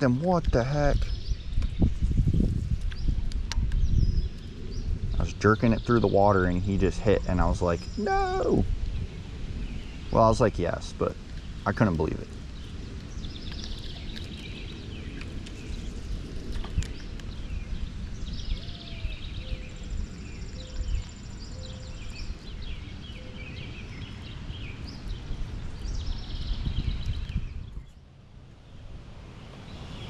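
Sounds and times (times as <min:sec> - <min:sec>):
birds chirping: 0:00.0 - 0:30.0
wind buffeting microphone: 0:00.0 - 0:30.0.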